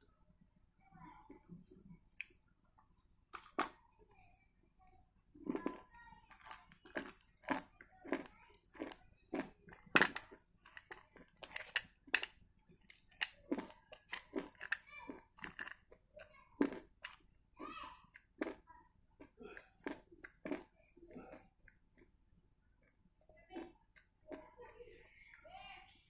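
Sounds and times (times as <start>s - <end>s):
crunchy biting and chewing: 5.5s - 17.3s, 18.2s - 22.1s.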